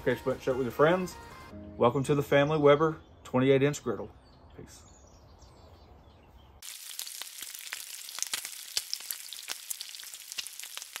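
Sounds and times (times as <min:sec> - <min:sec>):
food sizzling and crackling: 0:06.6 - 0:11.0.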